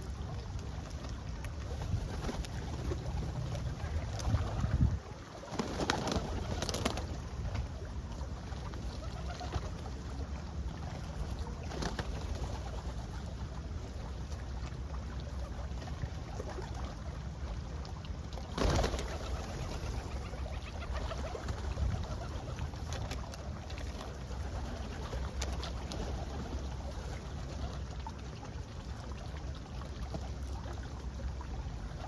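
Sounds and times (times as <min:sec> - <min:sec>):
low background rumble: 0:00.0 - 0:05.5.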